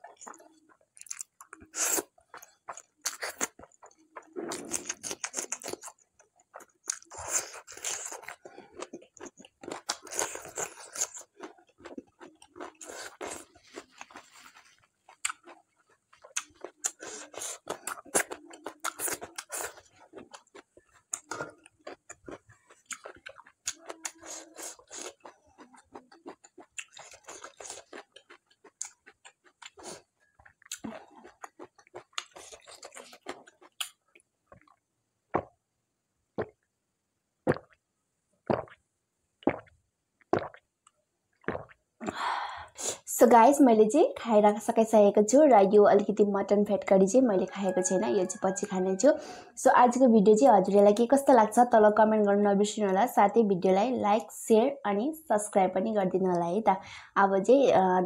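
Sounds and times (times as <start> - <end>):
person chewing food: 0.0 - 34.8, 36.4 - 36.6, 37.5 - 37.8, 38.4 - 38.8, 39.4 - 43.0.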